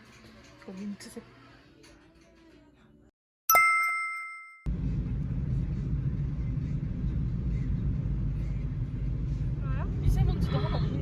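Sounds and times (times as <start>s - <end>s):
bell-like ding: 3.5s - 4.7s
car road rumble inside cabin: 4.7s - 11.0s.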